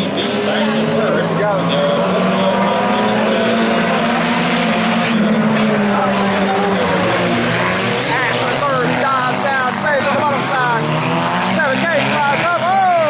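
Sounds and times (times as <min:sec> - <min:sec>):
race car engines running hard: 0:00.0 - 0:13.0.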